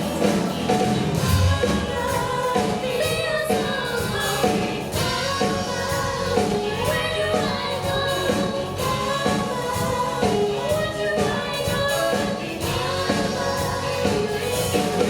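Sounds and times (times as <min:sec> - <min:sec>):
live band music: 0:00.0 - 0:15.0
voices singing together: 0:00.0 - 0:15.0.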